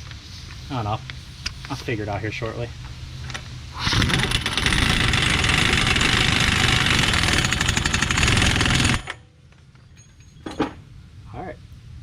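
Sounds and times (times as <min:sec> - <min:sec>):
impact wrench hammering: 0:04.2 - 0:09.2.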